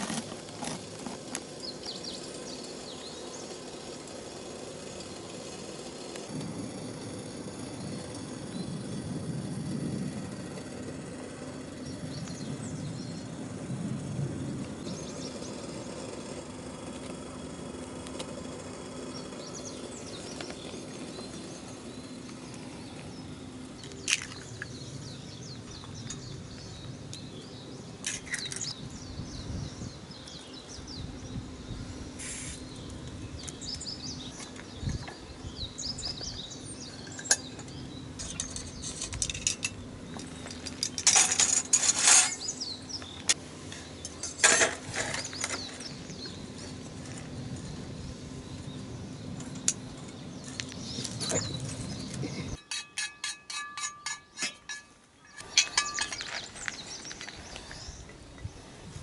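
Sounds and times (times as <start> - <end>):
small birds chirping: 0.0 - 14.1, 14.7 - 52.8, 53.8 - 59.0
steady low hum: 0.0 - 59.0.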